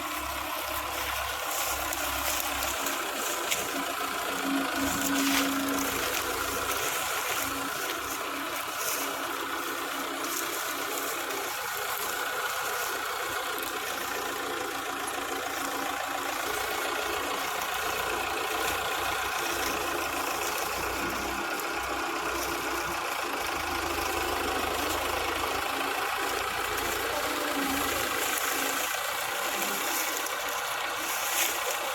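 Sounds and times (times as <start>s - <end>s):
harvester engine running: 0.0s - 31.9s.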